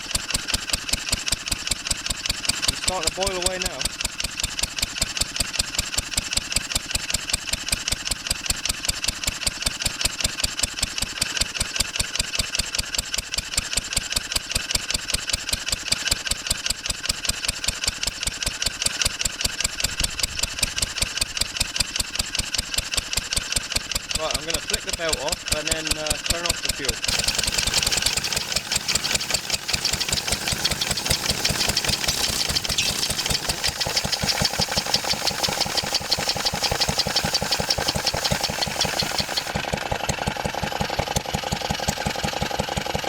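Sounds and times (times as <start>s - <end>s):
stationary engine running: 27.0s - 43.0s.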